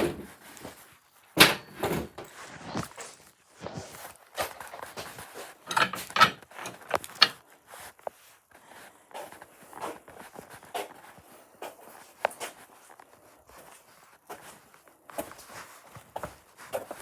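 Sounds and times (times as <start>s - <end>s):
clunks of objects set down: 1.4s - 3.0s, 5.7s - 7.4s.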